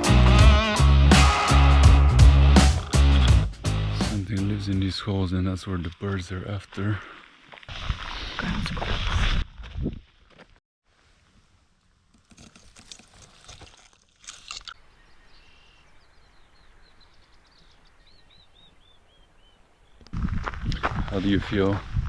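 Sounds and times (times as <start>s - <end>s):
small bird singing: 14.8s - 20.0s.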